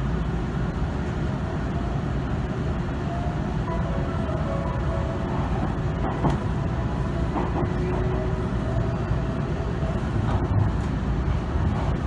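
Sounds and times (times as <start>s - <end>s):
train running rumble: 0.0s - 12.0s.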